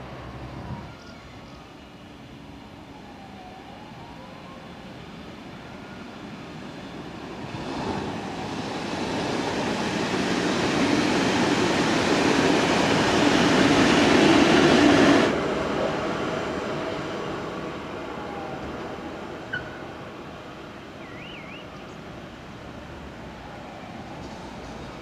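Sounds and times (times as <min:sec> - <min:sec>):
train wheels rumbling on rail: 0:06.4 - 0:19.9.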